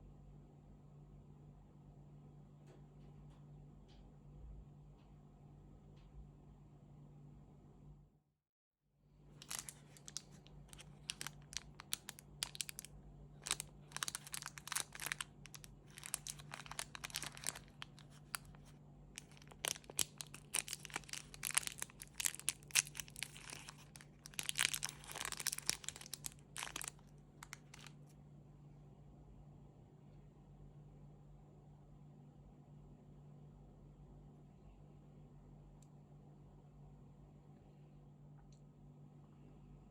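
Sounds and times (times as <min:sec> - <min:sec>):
wrapper crinkling and tearing: 0:09.4 - 0:28.1.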